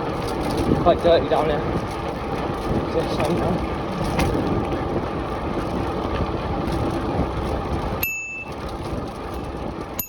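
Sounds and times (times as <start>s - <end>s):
bicycle rolling on dirt: 0.0s - 10.0s
wind on microphone: 0.0s - 10.0s
bicycle bell ringing: 8.0s - 8.6s.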